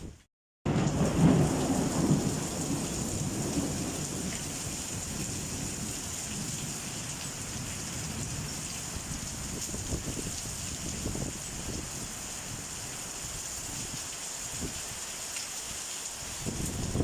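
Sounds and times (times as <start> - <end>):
rain falling: 0.0 - 17.0
thunder rolling: 0.7 - 8.6, 16.5 - 17.0.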